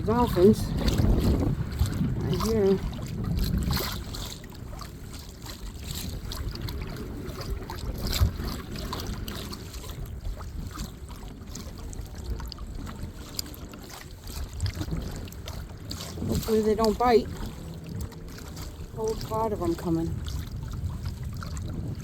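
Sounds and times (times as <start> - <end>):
water lapping and trickling: 0.0 - 22.0
wind on microphone: 0.0 - 22.0
short sharp splashes: 12.5 - 21.7.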